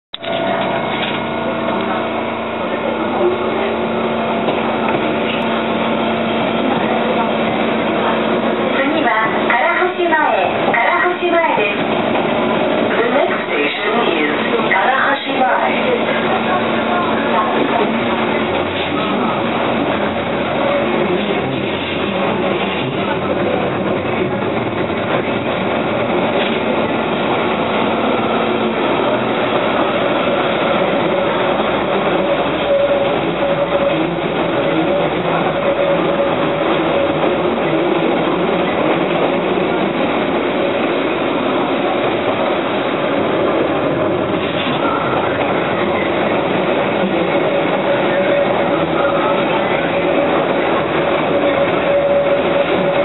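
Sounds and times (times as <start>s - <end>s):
train hum: 0.1s - 53.0s.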